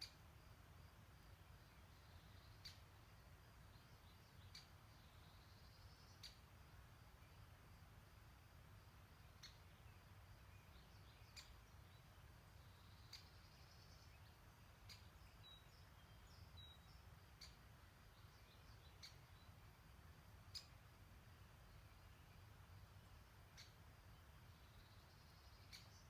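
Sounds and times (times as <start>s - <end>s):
bird chirps: 1.6s - 6.5s, 9.2s - 19.7s, 20.4s - 20.9s, 21.6s - 26.0s.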